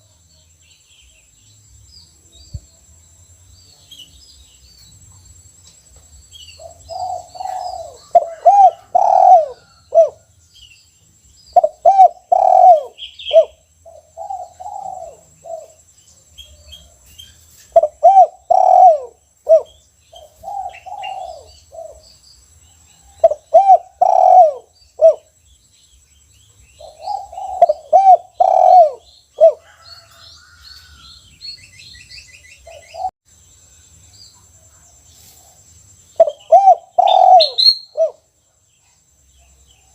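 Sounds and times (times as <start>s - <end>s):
small birds chirping: 0.0s - 39.9s
dove cooing: 6.6s - 10.3s, 11.6s - 15.8s, 17.7s - 22.1s, 23.1s - 25.3s, 26.8s - 30.2s, 36.2s - 38.2s.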